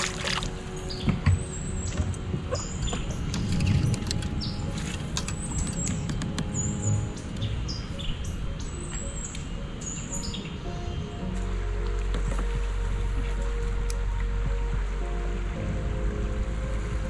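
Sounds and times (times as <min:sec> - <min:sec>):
background music: 0:00.0 - 0:17.0
small birds chirping: 0:00.8 - 0:11.2
scattered clicks: 0:03.2 - 0:06.7
low rumble: 0:10.6 - 0:17.0.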